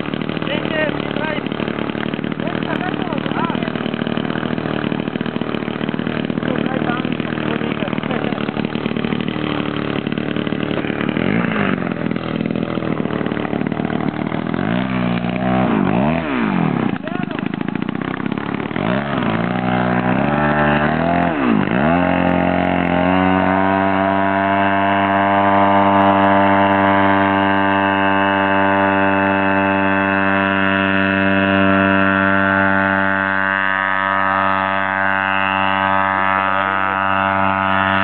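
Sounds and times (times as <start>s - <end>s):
model airplane engine running: 0.0s - 38.0s.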